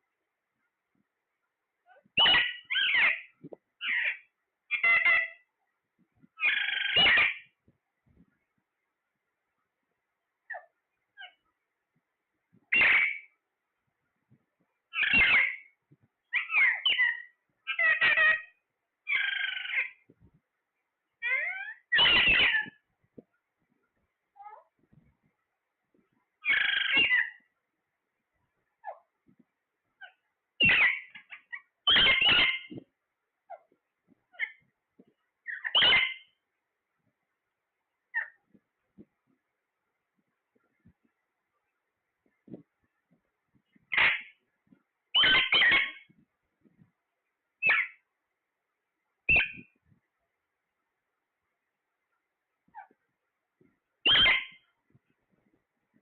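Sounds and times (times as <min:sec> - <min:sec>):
parrot squawking calls: 0:01.9 - 0:05.4, 0:06.4 - 0:07.4, 0:12.7 - 0:13.3, 0:14.9 - 0:20.0, 0:21.2 - 0:22.8, 0:26.4 - 0:27.4, 0:30.0 - 0:32.8, 0:35.4 - 0:36.3, 0:43.9 - 0:44.3, 0:45.2 - 0:46.1, 0:47.6 - 0:48.0, 0:49.3 - 0:49.6, 0:54.0 - 0:54.6.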